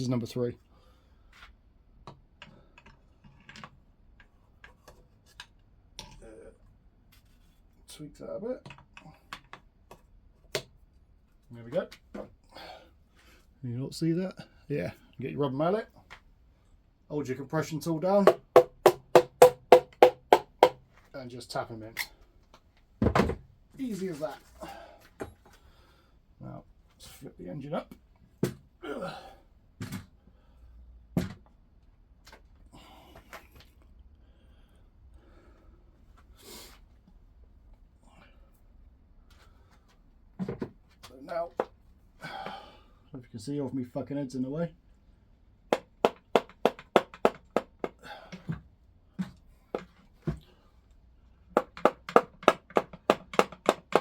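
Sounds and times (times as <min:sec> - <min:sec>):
person grunting: 0:28.8 - 0:29.4.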